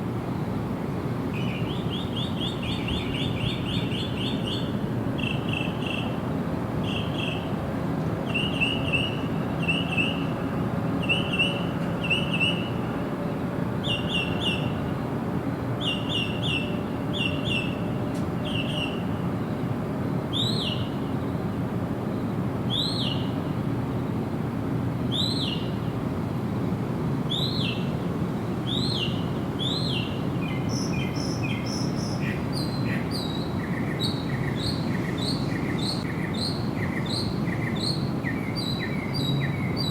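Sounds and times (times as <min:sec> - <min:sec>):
birds chirping: 0:28.7 - 0:39.9.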